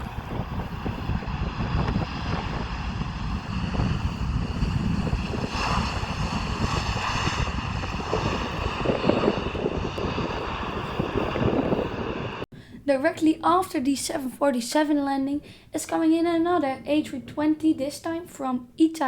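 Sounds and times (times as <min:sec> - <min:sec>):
jet engine high whine: 0:00.0 - 0:12.5
jet engines rumbling: 0:00.0 - 0:14.2.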